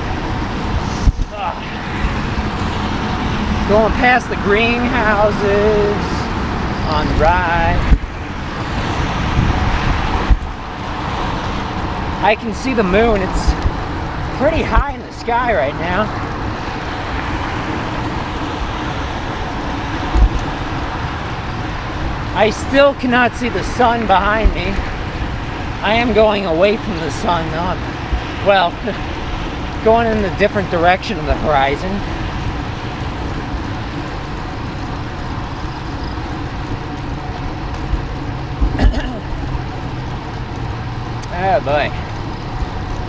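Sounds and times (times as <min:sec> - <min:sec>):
road and tyre noise: 0:00.0 - 0:43.0
wind rushing over microphone: 0:00.0 - 0:43.0.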